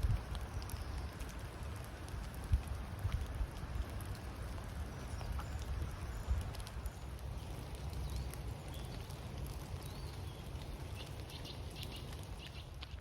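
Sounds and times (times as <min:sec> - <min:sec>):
low wind rumble: 0:00.0 - 0:13.0
bird chirps: 0:09.8 - 0:12.8.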